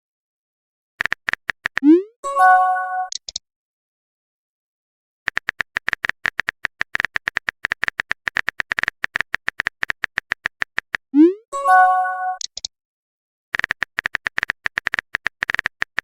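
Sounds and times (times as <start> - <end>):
keyboard typing clicks: 1.0 - 2.0, 3.0 - 3.4, 5.3 - 11.3, 12.3 - 12.7, 13.6 - 16.0
notification chime: 2.2 - 3.1, 11.2 - 12.4.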